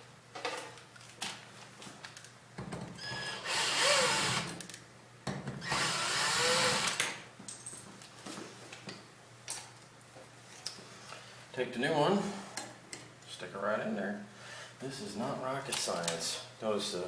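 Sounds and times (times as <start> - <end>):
cordless drill running: 3.0 - 4.6, 5.6 - 7.0.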